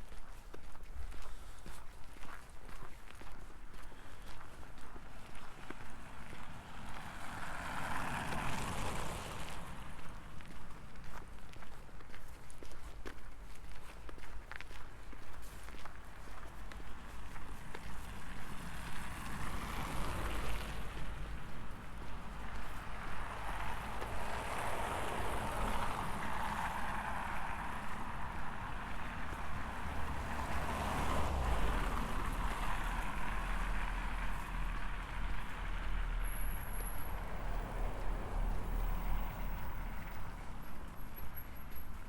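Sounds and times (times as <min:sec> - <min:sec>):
vehicles passing: 0:03.8 - 0:11.7, 0:14.5 - 0:42.0.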